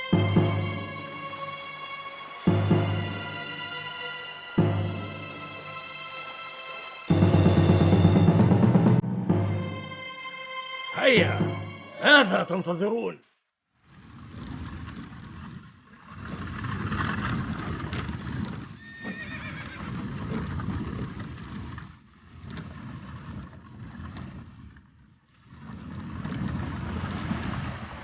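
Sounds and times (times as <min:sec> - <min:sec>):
horses whinnying: 0:18.8 - 0:20.1.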